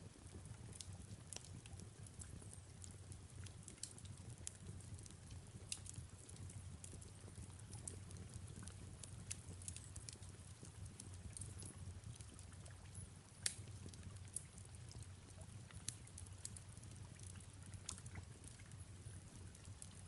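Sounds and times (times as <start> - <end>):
fireplace crackling and popping: 0.0 - 20.0
soft rain falling: 0.0 - 20.0.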